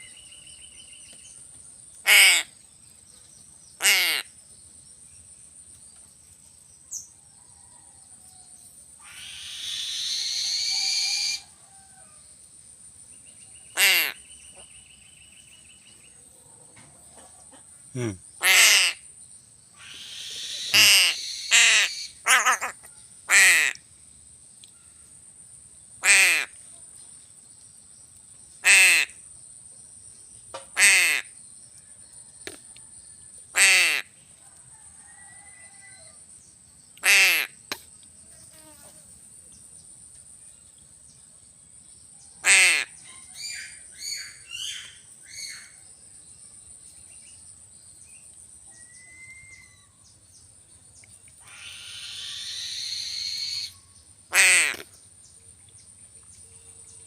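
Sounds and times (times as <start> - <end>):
crow cawing: 3.8 - 4.2, 13.8 - 14.2, 20.6 - 22.7.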